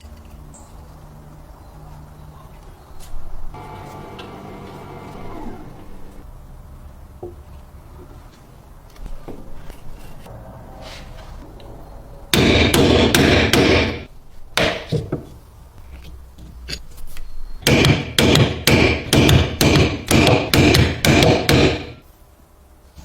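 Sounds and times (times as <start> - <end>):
hammer striking metal: 12.3 - 14.9, 17.6 - 22.0.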